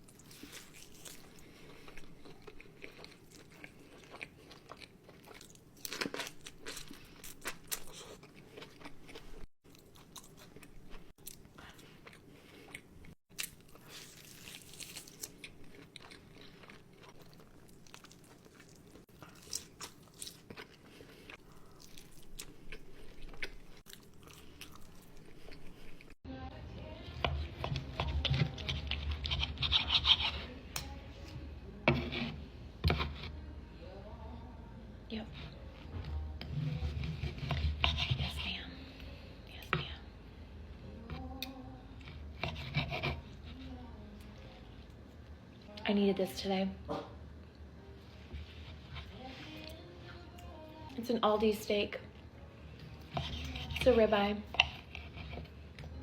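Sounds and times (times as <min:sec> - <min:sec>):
person chewing food: 0:00.0 - 0:26.2.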